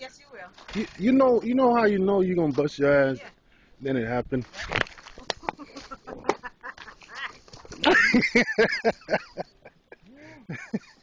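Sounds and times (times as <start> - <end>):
sharp clicks or crunches: 4.5 - 5.6
person laughing hard: 5.2 - 11.0.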